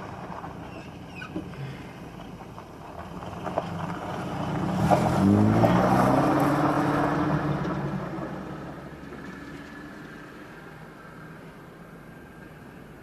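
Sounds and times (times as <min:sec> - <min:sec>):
vehicle engine passing by: 0:03.2 - 0:10.7.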